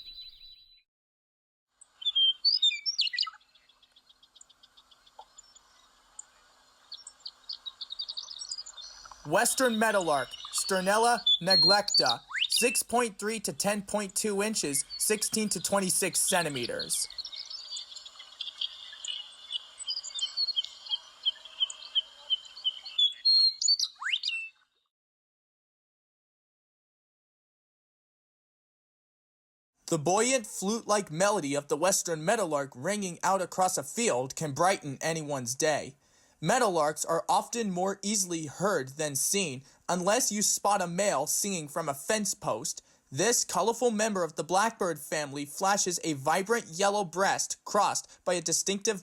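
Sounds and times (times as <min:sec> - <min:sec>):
meadowlark whistled song: 0:00.0 - 0:00.8, 0:01.9 - 0:24.7
rapid high chirps: 0:07.0 - 0:24.4.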